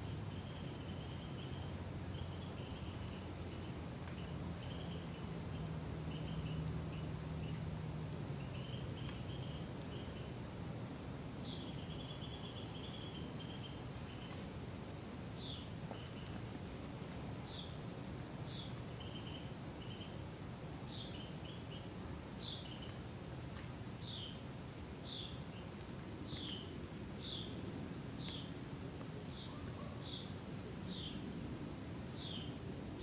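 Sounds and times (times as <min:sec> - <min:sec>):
small bird chirping: 0:00.0 - 0:07.6, 0:08.4 - 0:10.3, 0:11.4 - 0:14.5, 0:18.4 - 0:20.2
low background hiss: 0:00.0 - 0:33.0.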